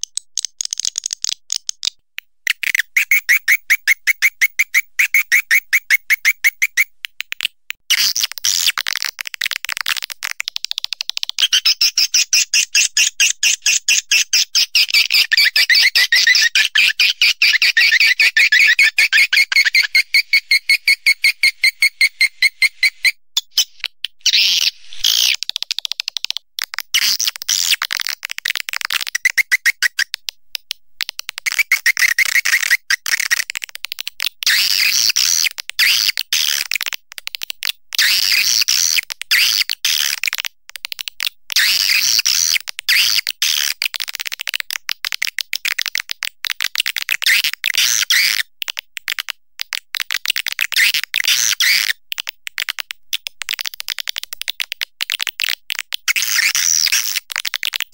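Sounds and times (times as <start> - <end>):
swiftlet calls chattering: 14.6 - 25.4.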